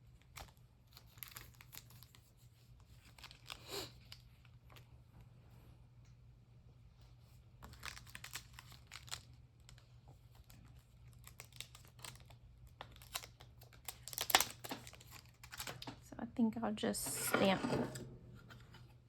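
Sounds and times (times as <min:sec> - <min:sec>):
paper rustling and crinkling: 0:00.2 - 0:04.8, 0:07.5 - 0:16.0.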